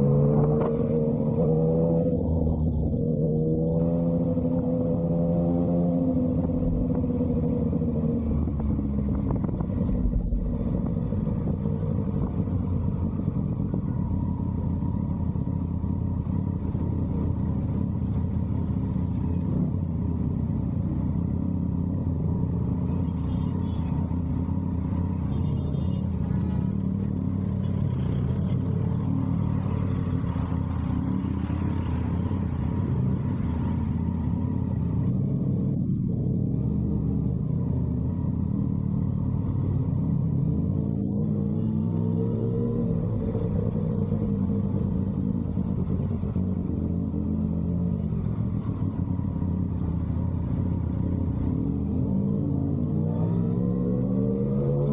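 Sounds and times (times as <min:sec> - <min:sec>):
motorcycle engine low rumble: 0:00.0 - 0:54.9.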